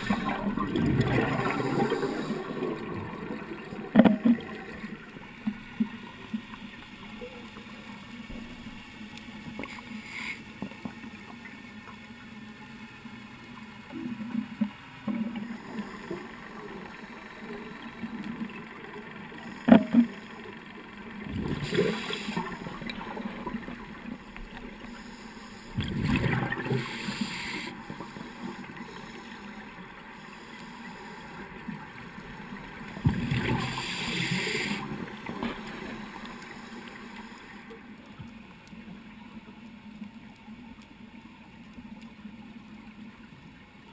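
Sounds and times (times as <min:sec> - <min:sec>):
diver's regulator exhaling: 0:00.0 - 0:04.9, 0:21.3 - 0:22.8, 0:24.9 - 0:29.4, 0:33.0 - 0:37.6
rush of bubbles: 0:00.0 - 0:05.0, 0:21.3 - 0:23.6, 0:25.8 - 0:27.4, 0:33.0 - 0:35.9.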